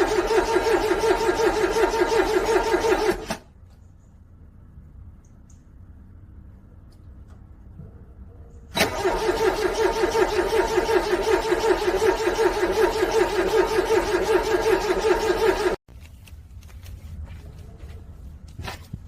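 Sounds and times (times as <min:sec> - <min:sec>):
car starter cranking engine: 0:00.0 - 0:03.5, 0:08.7 - 0:15.8.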